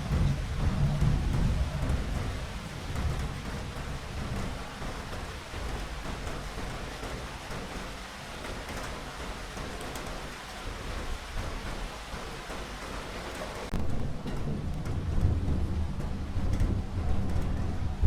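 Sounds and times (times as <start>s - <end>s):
thunder rumbling: 0.0s - 8.6s, 13.6s - 18.0s
steady rain: 0.0s - 18.0s.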